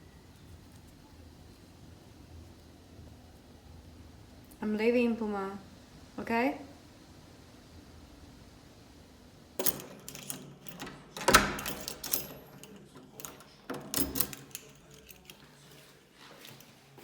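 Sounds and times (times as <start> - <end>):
objects clicking and clattering: 9.6 - 15.4.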